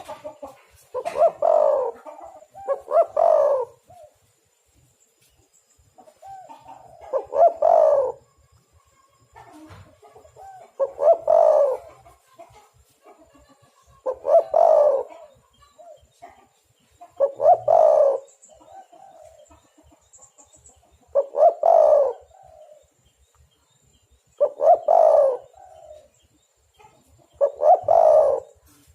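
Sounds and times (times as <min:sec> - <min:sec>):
dove cooing: 0:00.0 - 0:04.2, 0:06.0 - 0:08.4, 0:09.3 - 0:12.5, 0:14.0 - 0:16.1, 0:17.0 - 0:19.6, 0:21.1 - 0:22.9, 0:24.3 - 0:26.2, 0:26.8 - 0:28.8.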